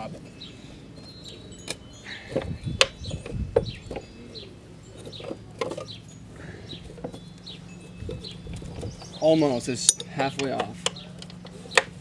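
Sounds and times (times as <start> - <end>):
small birds chirping: 0.0 - 12.0
wrench clinking against bolt: 9.8 - 11.9.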